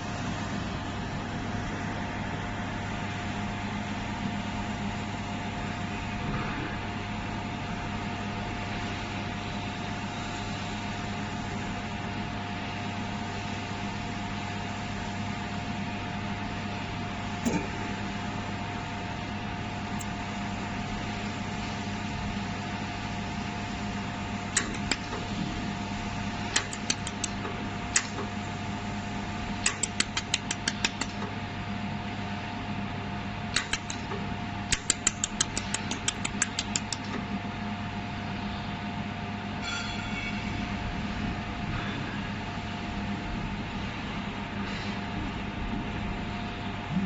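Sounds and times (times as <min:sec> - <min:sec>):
machine fan hum: 0:00.0 - 0:47.0
laser pulses snapping clicks: 0:24.6 - 0:25.2, 0:26.5 - 0:28.3, 0:29.6 - 0:31.3, 0:33.5 - 0:37.2.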